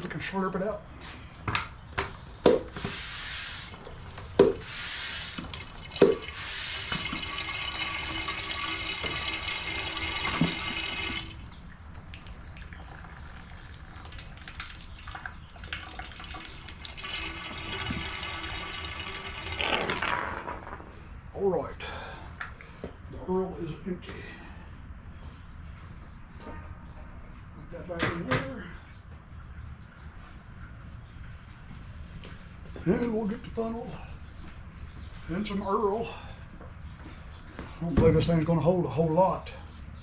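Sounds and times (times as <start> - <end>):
suction pump strokes: 2.7 - 11.3
oil slurping through hose: 2.7 - 20.3.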